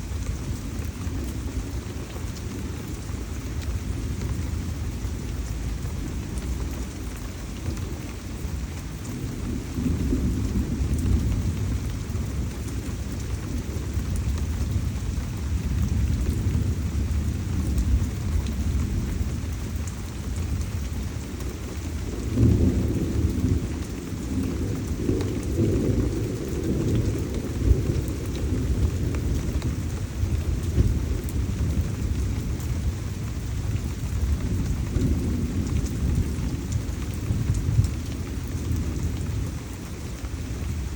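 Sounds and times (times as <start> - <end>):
heavy rain: 0.0 - 40.9
low rumbling thunder: 0.0 - 40.9.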